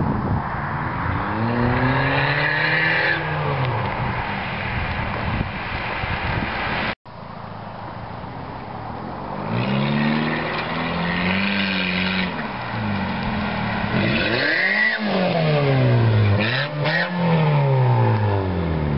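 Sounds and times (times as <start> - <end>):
car engine revving: 0.8 - 5.1, 9.4 - 18.9.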